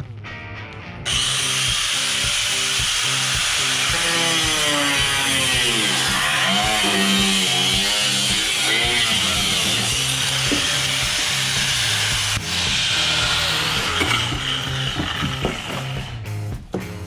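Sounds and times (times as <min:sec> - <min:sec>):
power cutting tool cutting: 0:01.1 - 0:16.2.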